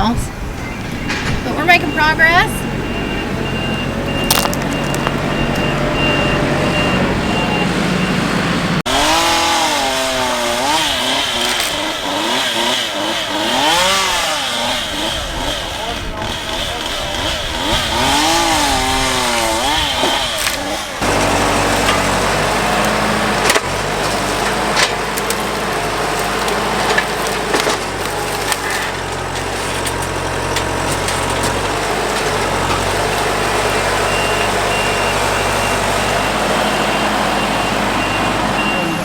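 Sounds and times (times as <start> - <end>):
wood cracking: 3.9 - 6.0, 8.9 - 36.6
chainsaw revving: 8.0 - 38.6.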